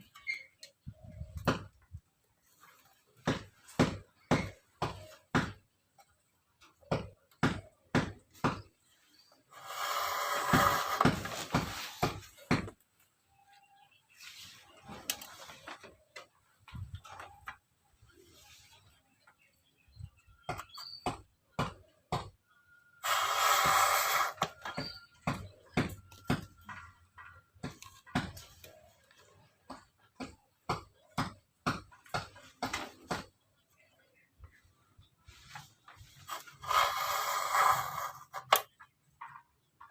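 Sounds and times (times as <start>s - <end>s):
sharp knocks on wood: 3.2s - 5.6s, 6.8s - 8.7s
sharp wooden knocks: 3.2s - 5.7s, 6.8s - 8.8s, 9.7s - 12.8s, 20.5s - 22.4s, 23.0s - 28.6s, 29.6s - 33.4s
rasping scraping on bamboo: 8.4s - 12.7s, 23.0s - 26.4s, 35.4s - 38.7s.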